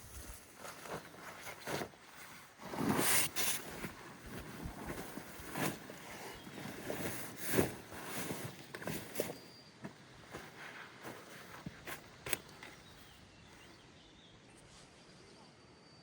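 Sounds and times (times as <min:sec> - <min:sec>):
brush rustling and crunching: 0:00.0 - 0:09.5.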